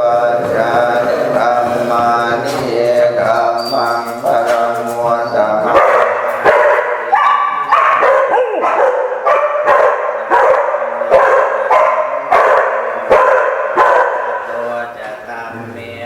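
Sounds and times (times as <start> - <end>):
dog barking: 5.6 - 14.5
dog whining: 7.1 - 9.4.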